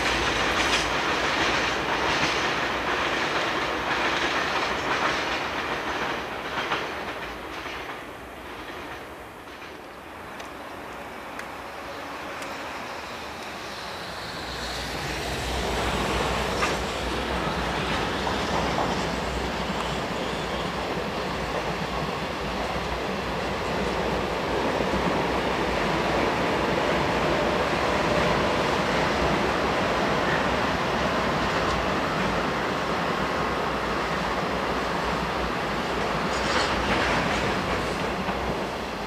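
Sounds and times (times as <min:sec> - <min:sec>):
freight train wheels rumbling: 0:00.0 - 0:39.0.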